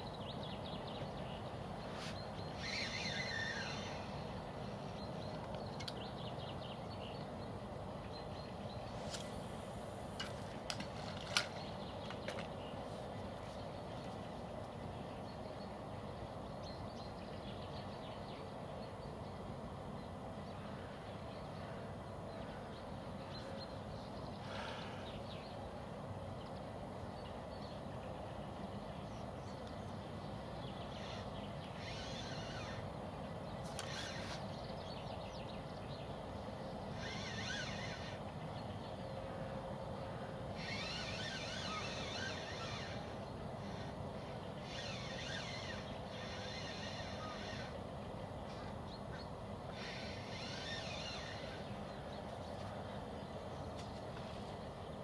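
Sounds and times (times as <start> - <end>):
small bird calls: 0.0 - 19.4, 20.0 - 55.0.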